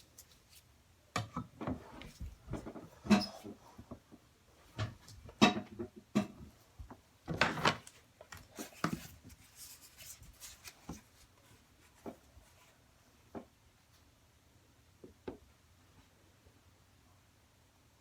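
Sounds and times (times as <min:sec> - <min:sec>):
handling knocks and rubs: 0:08.4 - 0:12.7.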